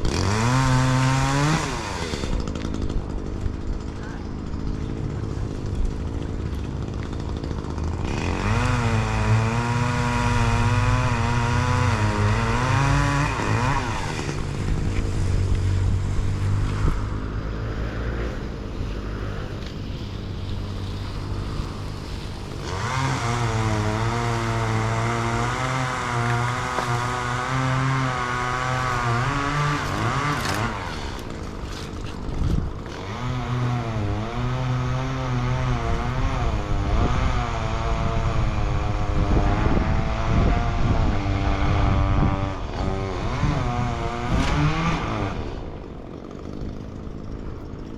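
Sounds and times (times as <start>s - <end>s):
chainsaw revving: 0.0s - 47.9s
low engine drone: 9.6s - 44.3s.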